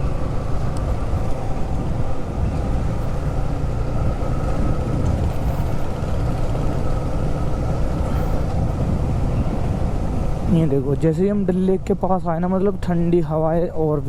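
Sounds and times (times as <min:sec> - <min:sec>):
motorcycle engine running: 0:00.0 - 0:10.4
rush of wind noise: 0:00.0 - 0:14.0.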